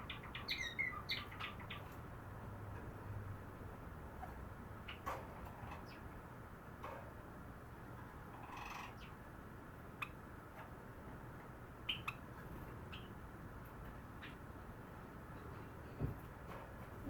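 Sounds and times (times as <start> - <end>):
sparrow clicks and chirps: 0.0 - 2.1, 11.8 - 12.2.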